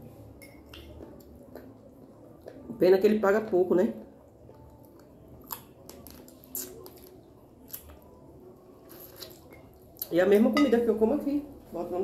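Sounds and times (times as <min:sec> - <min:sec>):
people chewing food: 0:00.7 - 0:02.8, 0:04.2 - 0:10.2.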